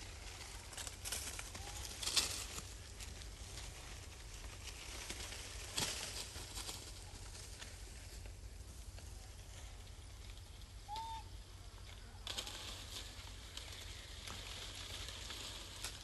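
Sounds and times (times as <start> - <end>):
light rustling and crackling: 0.0 - 10.8, 11.8 - 16.0.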